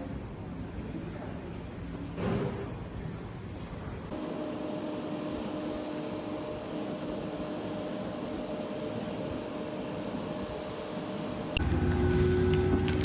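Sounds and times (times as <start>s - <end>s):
machine hum: 4.1s - 13.0s.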